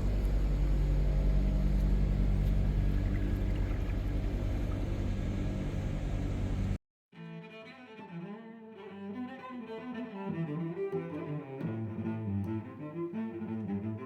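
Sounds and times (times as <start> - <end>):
car engine humming: 0.0 - 6.8.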